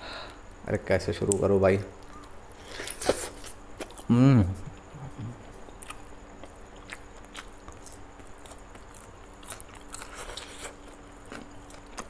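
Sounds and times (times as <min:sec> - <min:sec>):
person chewing with wet smacks: 0:04.7 - 0:12.0.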